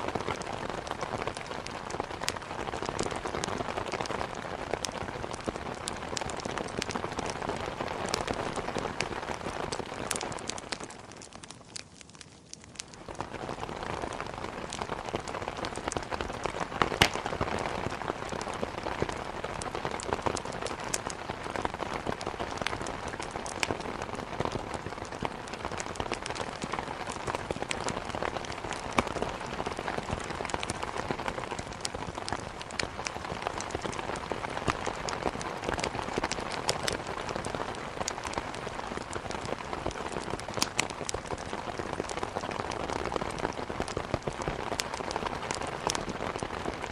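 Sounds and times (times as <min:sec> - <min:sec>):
heavy rain: 0:00.0 - 0:12.0, 0:12.7 - 0:46.9
raindrops ticking: 0:00.1 - 0:46.8.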